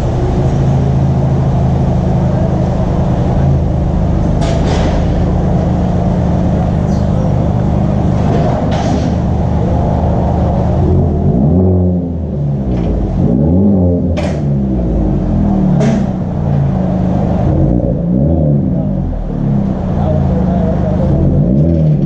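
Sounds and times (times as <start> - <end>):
car engine revving: 0.0 - 22.0
sharp exhaust snaps: 14.1 - 14.8.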